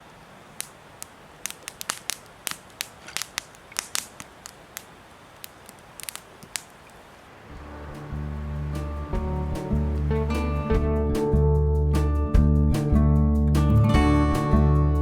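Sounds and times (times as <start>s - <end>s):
wood fire crackling: 0.0s - 11.3s
fire pops and snaps: 0.6s - 7.0s.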